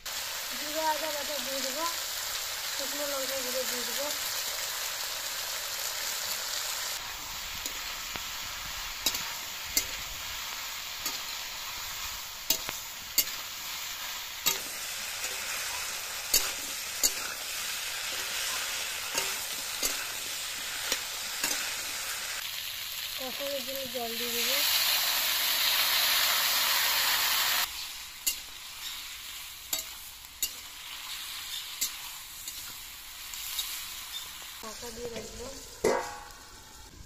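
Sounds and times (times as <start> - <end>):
vegetables sizzling in oil: 0.0 - 37.0
metal spatula scraping pan: 12.4 - 21.8.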